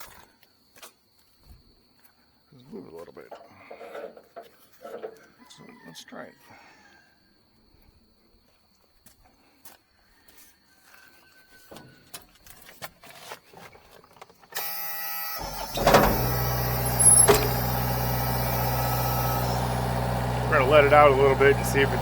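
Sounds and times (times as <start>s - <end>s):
engine cranked by starter: 14.6s - 22.0s
engine running steadily: 15.4s - 22.0s.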